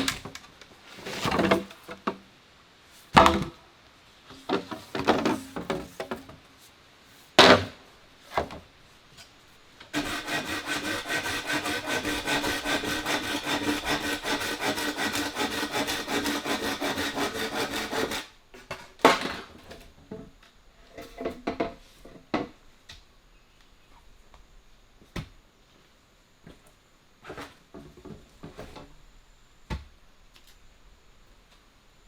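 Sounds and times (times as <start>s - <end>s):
saw cutting wood: 9.9s - 18.3s.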